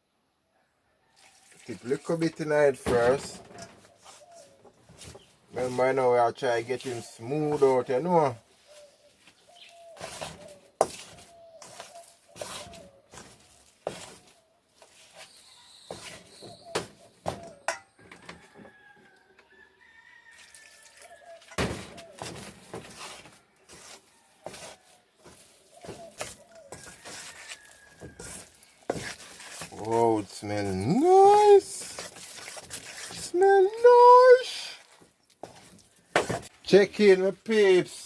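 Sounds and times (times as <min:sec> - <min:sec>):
faint birds calling: 0:03.4 - 0:19.8, 0:20.9 - 0:31.8
spoon stirring batter in bowl: 0:09.2 - 0:18.5, 0:20.2 - 0:36.6.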